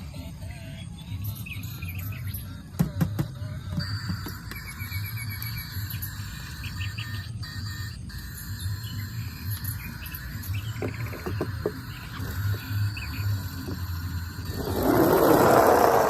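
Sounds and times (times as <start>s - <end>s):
small repeated chirps: 0.7s - 2.8s, 3.7s - 15.2s
quick trill: 14.0s - 16.0s.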